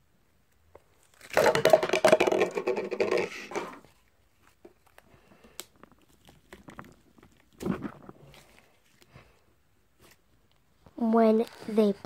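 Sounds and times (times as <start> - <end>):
slime crackling and popping: 4.9 - 8.7.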